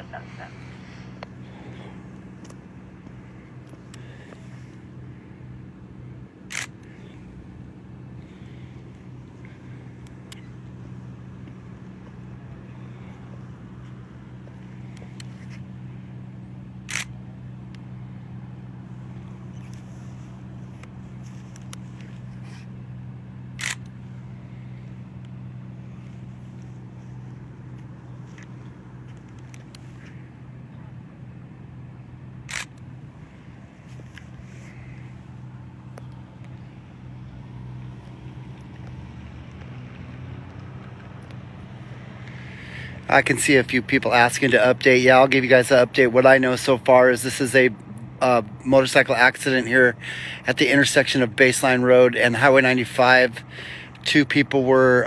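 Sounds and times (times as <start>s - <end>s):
low engine hum: 0.0s - 55.0s
camera shutter clicks: 6.5s - 7.2s, 10.0s - 10.5s, 16.9s - 17.2s, 23.6s - 24.0s, 32.5s - 32.9s.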